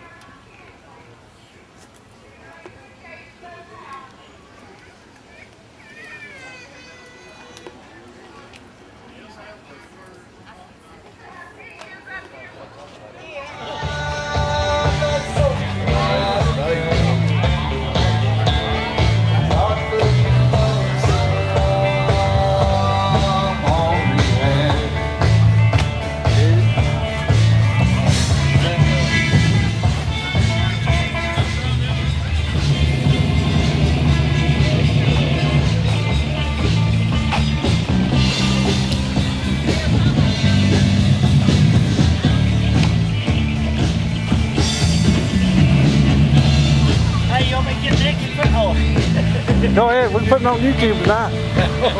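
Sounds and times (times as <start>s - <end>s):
held bass and guitar notes: 13.6s - 51.9s
rock band playing: 13.8s - 51.9s.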